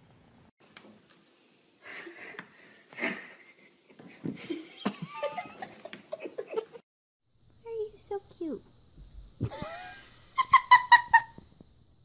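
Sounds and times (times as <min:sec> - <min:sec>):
breathy wheezing laughter: 0:01.8 - 0:06.7.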